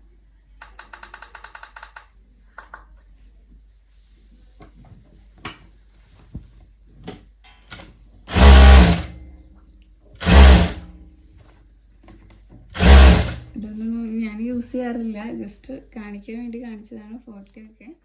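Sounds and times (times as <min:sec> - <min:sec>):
sewing machine running fast: 0:08.3 - 0:09.2, 0:10.2 - 0:10.9, 0:12.8 - 0:13.5.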